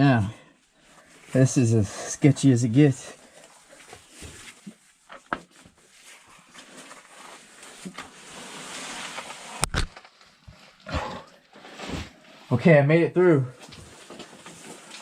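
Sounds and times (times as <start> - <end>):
heavy breathing: 10.8 - 11.4.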